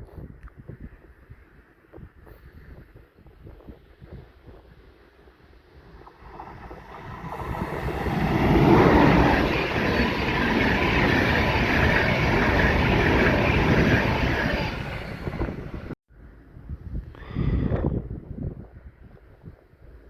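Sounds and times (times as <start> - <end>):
train wheels rushing on rail: 6.1 - 16.0.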